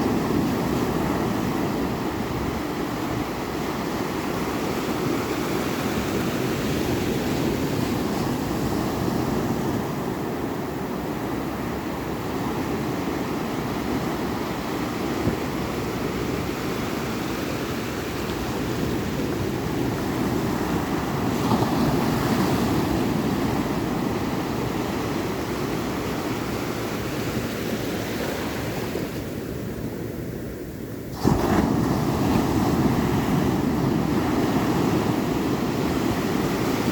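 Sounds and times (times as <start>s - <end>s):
ocean waves washing in: 0.0s - 36.9s.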